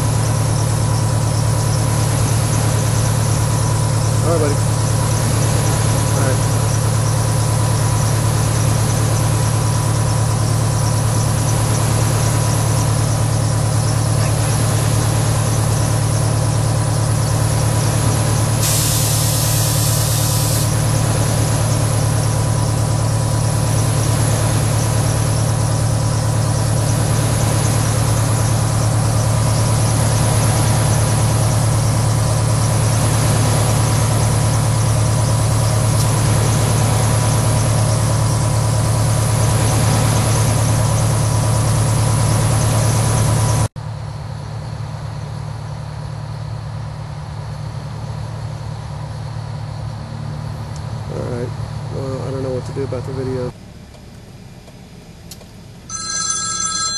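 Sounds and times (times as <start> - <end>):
vehicle engine idling: 0.0 - 56.9
burst of high hiss: 18.6 - 20.7.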